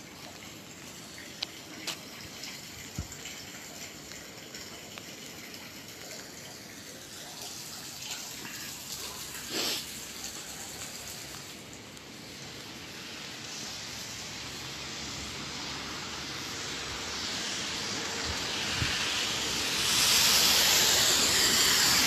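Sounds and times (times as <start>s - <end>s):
rain on wet asphalt: 0.0s - 22.0s
burst of noise: 16.6s - 22.0s.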